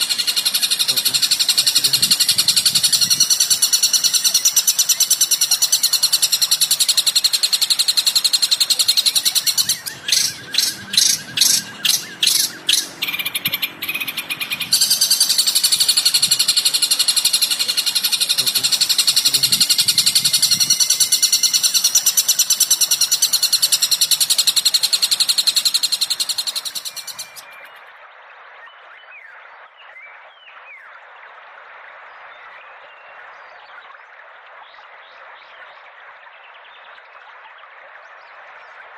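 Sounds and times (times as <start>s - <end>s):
songbird chattering song: 0.0s - 27.9s.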